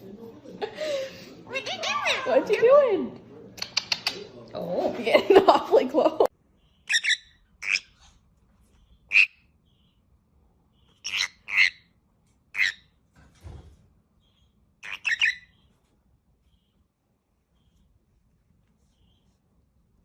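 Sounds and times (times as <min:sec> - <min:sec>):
parrot chirping: 0:01.5 - 0:02.6, 0:06.5 - 0:13.0, 0:14.2 - 0:16.8.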